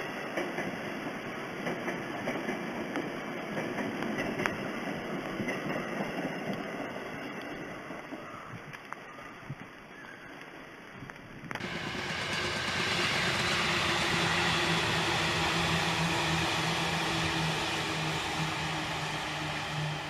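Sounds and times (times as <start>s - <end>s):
electric train passing: 11.6s - 20.0s
low hum: 11.6s - 20.0s.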